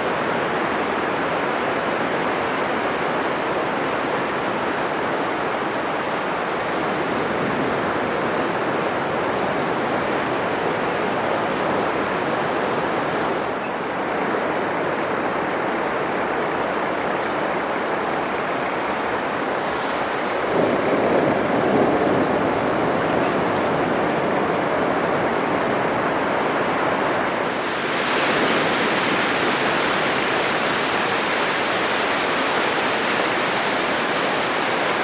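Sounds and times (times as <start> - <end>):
surf waves breaking: 3.0 - 35.0.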